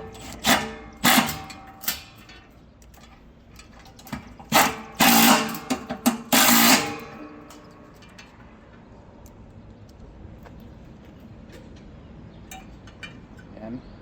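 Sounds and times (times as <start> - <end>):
power driver driving screws: 0.0 - 2.2, 4.2 - 7.7.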